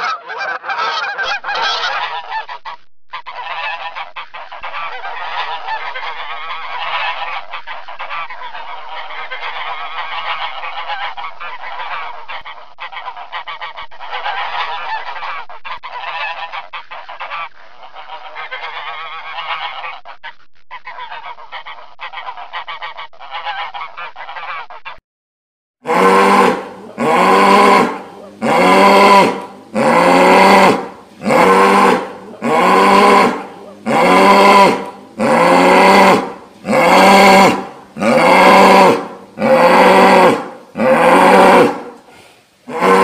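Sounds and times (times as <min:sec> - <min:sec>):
flamingos honking: 0:00.0 - 0:24.8.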